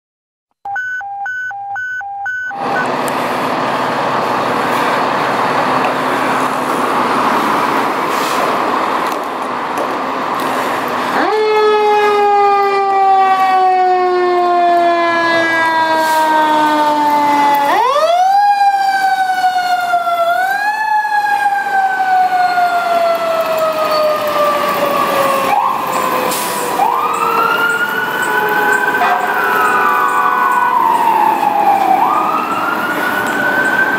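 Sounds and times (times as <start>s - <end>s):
quick pulsed beeping: 0.7s - 2.9s
loud rushing noise: 2.6s - 11.2s.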